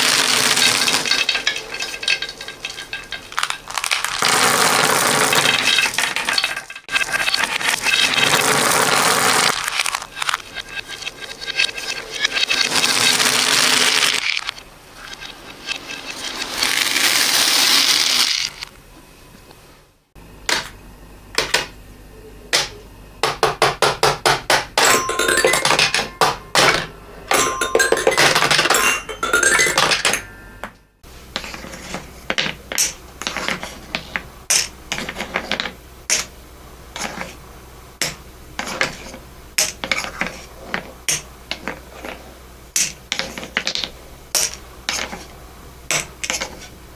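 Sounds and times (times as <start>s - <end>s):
reversed beads clattering: 0.0s - 18.7s, 24.8s - 30.7s
ringing tones: 24.8s - 30.8s.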